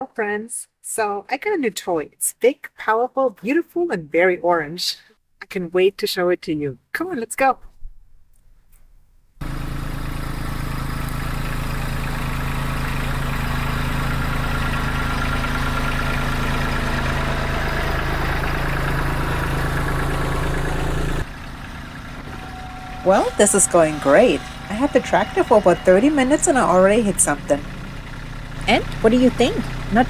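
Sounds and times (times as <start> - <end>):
tractor diesel engine running: 9.4 - 30.0.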